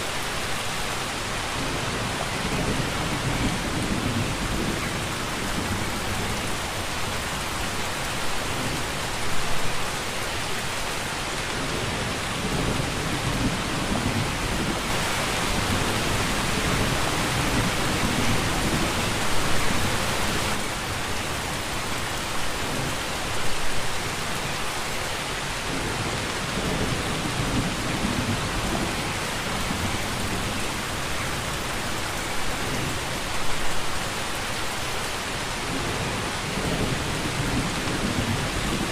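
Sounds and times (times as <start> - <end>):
steady rain: 0.0 - 38.9
thunder rumbling: 1.3 - 7.2, 11.5 - 20.6, 35.7 - 38.9.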